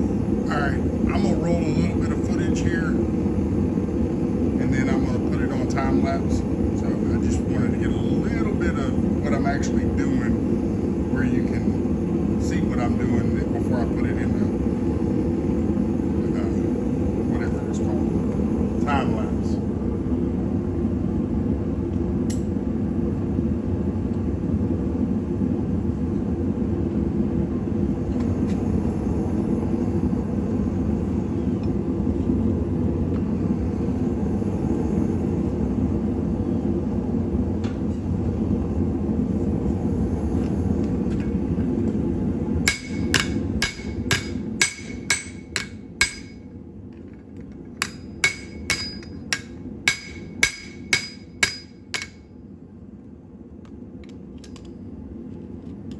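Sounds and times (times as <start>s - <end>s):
hammer striking anvil: 42.7s - 46.4s, 47.8s - 52.2s.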